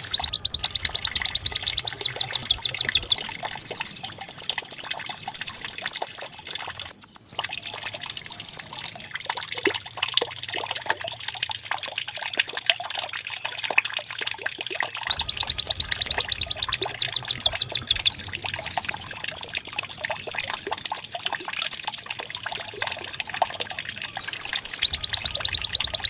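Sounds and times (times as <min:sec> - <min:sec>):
bird singing fast trilling song: 0:00.0 - 0:08.7, 0:15.1 - 0:26.0.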